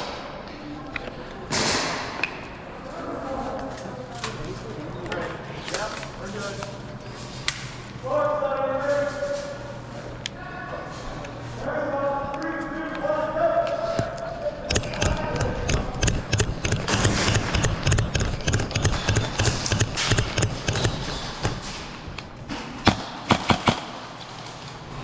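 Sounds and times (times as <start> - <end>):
airsoft gunfire thumps and clicks: 14.7 - 21.7, 22.5 - 24.0
airsoft gun sharp cracks: 22.8 - 24.1.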